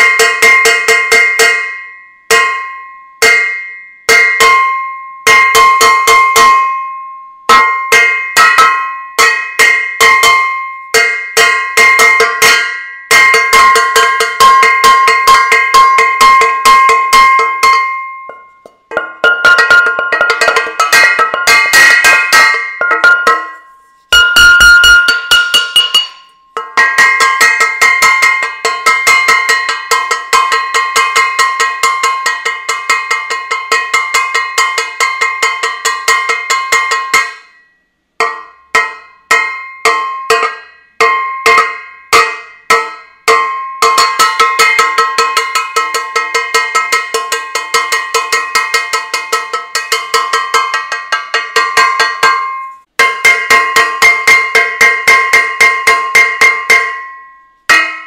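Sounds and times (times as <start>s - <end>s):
saucepan banging metallic clang: 7.5s - 31.4s.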